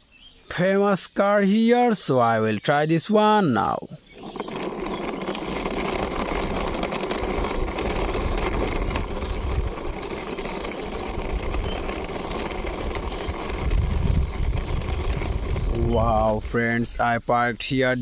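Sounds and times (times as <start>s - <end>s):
bird chirping: 0.0s - 5.7s, 9.2s - 18.0s
toy car wheels rolling and rattling: 3.6s - 17.0s.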